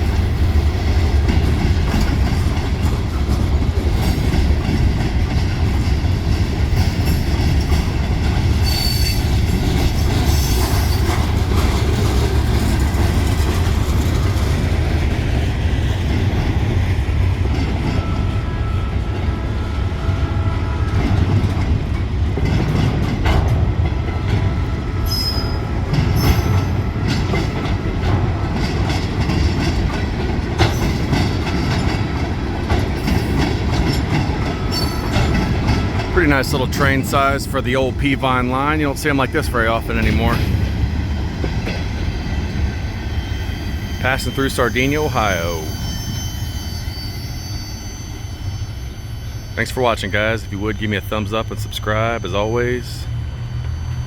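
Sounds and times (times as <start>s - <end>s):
wheels clicking over rail joints: 0.0s - 19.4s, 20.8s - 42.8s
freight train cars rolling: 0.0s - 54.0s
high wheel squeals: 8.4s - 14.5s, 24.4s - 27.8s, 32.9s - 37.1s, 41.8s - 54.0s.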